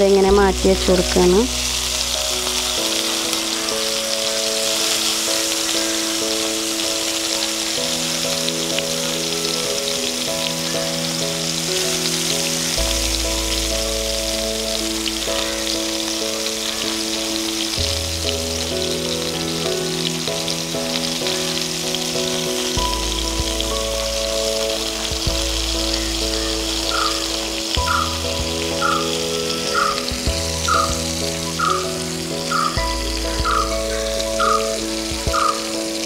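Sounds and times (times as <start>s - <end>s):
background music with held chords: 0.0s - 36.0s
prawns sizzling and crackling: 0.0s - 36.0s.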